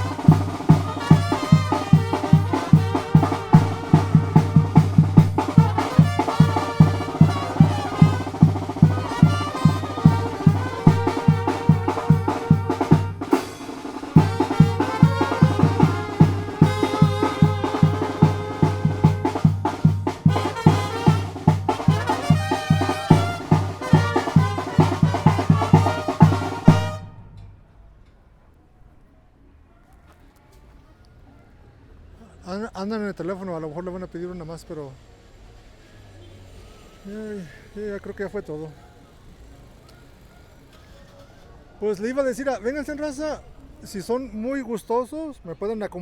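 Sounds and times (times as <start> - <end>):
bass drum and snare beat: 0.0 - 27.4
brass band playing: 0.0 - 27.6.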